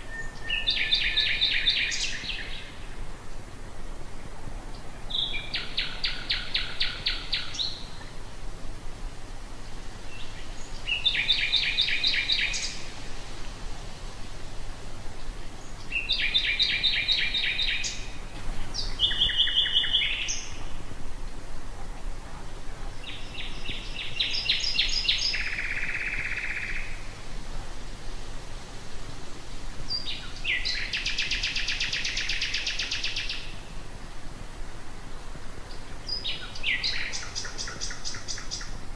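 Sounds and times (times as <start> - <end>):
nightingale singing: 0.0 - 3.0, 4.7 - 8.2, 10.0 - 13.1, 15.2 - 20.8, 22.9 - 27.1, 29.9 - 33.8, 35.6 - 38.8.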